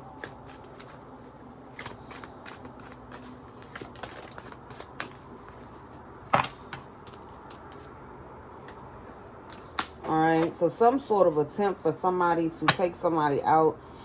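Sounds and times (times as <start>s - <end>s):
cards being shuffled: 0.1s - 8.0s.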